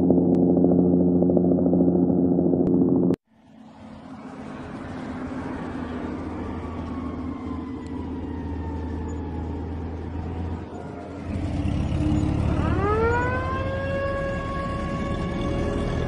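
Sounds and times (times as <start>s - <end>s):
rising tone with overtones: 0.0s - 15.4s.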